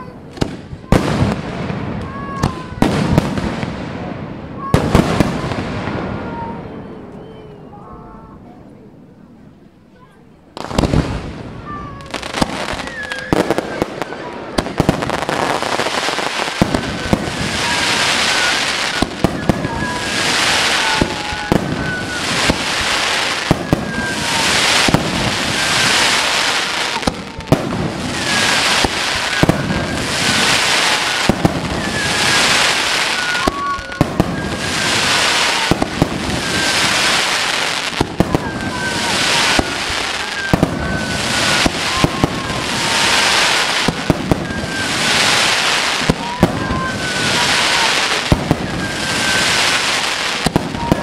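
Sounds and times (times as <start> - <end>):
hissing wash of fireworks: 0.0 - 9.4, 10.0 - 51.0
falling firework whistles: 10.6 - 51.0
firework shells bursting with bangs: 10.6 - 51.0.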